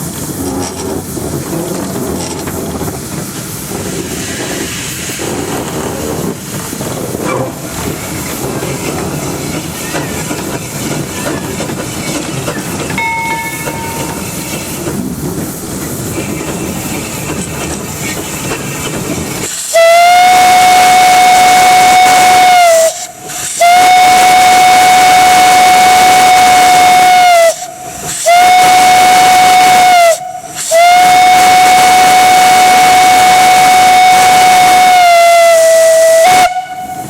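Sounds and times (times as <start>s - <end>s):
steam locomotive hiss and rattle: 0.0s - 37.0s
steam whistle: 19.6s - 37.0s.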